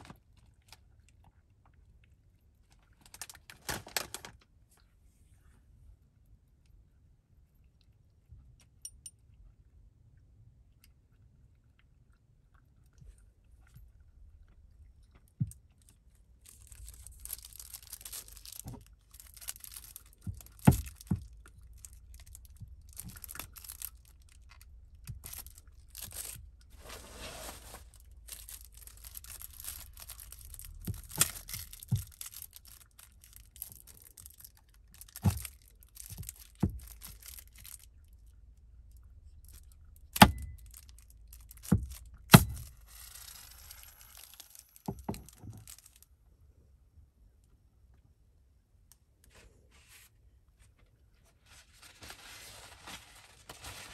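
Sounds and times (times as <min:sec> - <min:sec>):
cat crunching dry food: 0:00.0 - 0:04.9, 0:08.4 - 0:46.1
crackly rattling: 0:15.8 - 0:26.8, 0:27.7 - 0:38.2.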